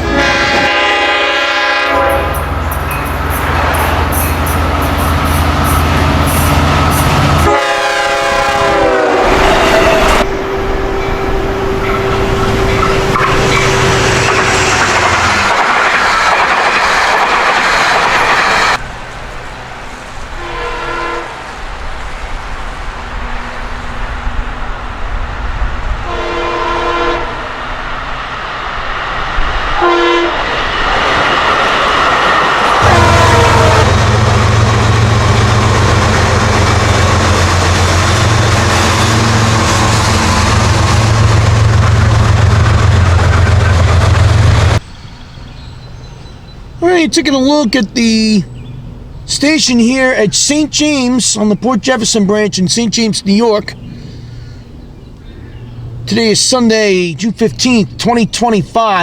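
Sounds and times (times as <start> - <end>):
train horn blowing: 0.0 - 15.0, 20.3 - 21.4, 26.0 - 27.6, 29.8 - 30.5, 32.7 - 44.8
distant train horn blasts: 0.0 - 15.2, 20.2 - 21.6, 25.9 - 27.8, 29.8 - 30.6, 32.6 - 44.8
diesel locomotive engine running: 0.0 - 44.9
train coaches rattling over rails: 0.0 - 54.9.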